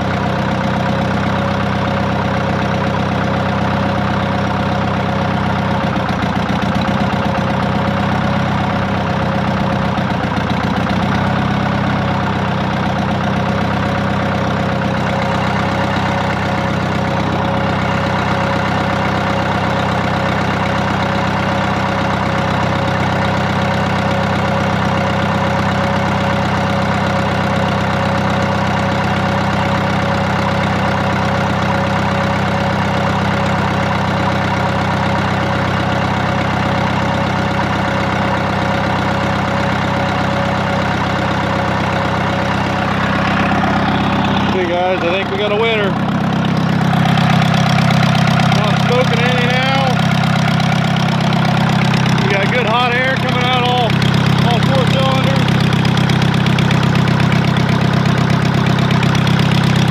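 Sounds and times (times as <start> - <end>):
tractor diesel engine idling: 0.0 - 59.9.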